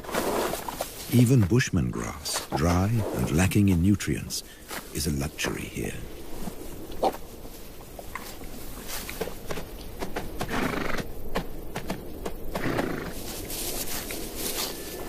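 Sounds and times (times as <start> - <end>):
hooves clopping on dry ground: 0.0 - 15.0
horses noisy bursts: 10.4 - 11.1, 12.5 - 13.3.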